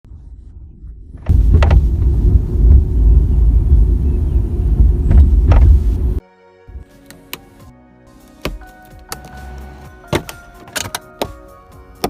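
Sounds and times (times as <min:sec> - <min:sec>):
car cabin road rumble: 0:01.0 - 0:06.2
headliner creaks: 0:05.0 - 0:06.2.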